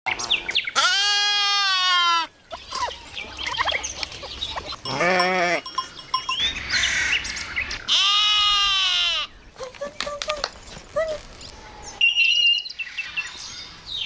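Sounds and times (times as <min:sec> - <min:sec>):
goat bleating: 0:00.8 - 0:02.9, 0:04.6 - 0:05.8, 0:07.9 - 0:09.3.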